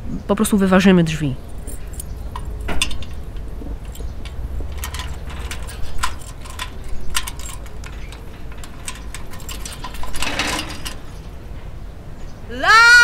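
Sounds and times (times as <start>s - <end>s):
keys jingling against a lock: 1.4s - 11.3s.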